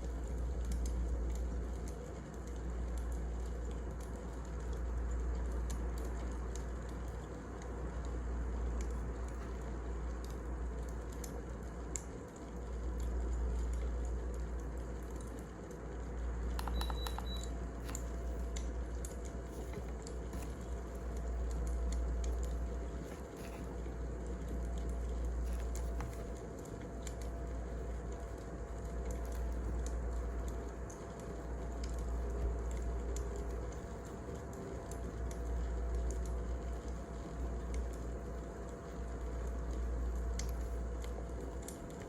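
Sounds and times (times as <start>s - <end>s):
clicks: 16.5s - 18.7s
wood fire crackling: 17.4s - 42.0s.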